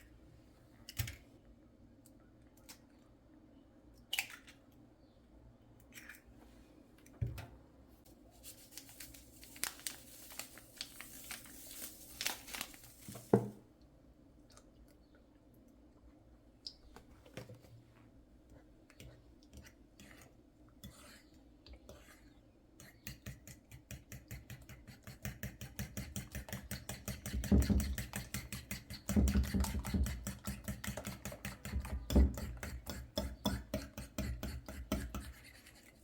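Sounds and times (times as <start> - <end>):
crinkling tearing handling noise: 8.4 - 13.4.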